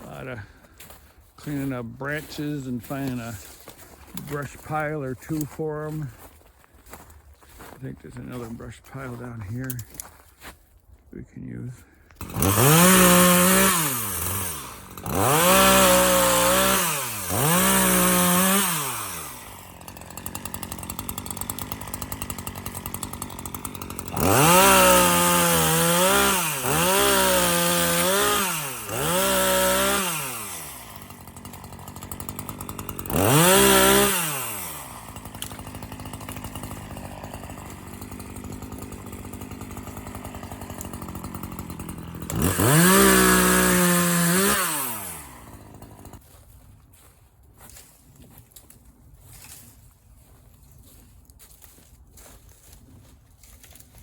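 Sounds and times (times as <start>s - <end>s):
chainsaw revving: 0.0s - 6.2s, 12.2s - 46.3s
chainsaw rattling idle: 0.0s - 10.2s, 12.1s - 46.3s.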